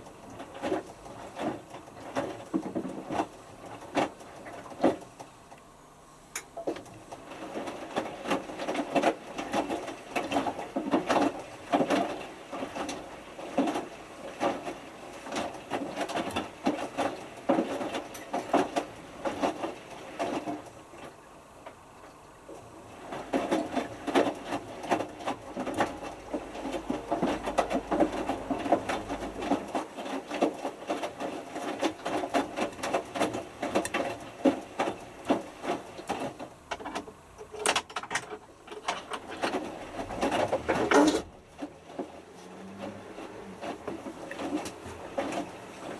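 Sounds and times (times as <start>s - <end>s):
washing machine drum tumbling: 22.7s - 36.7s, 38.5s - 45.9s.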